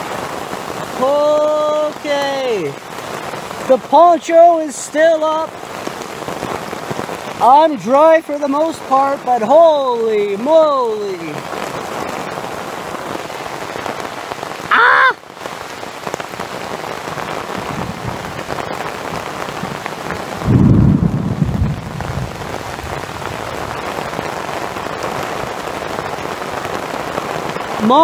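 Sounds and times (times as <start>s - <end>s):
torrential rain on a shelter: 0.0s - 28.0s
man whooping: 1.0s - 2.0s, 14.7s - 15.2s
low rumble of thunder: 17.6s - 18.6s, 20.4s - 23.9s.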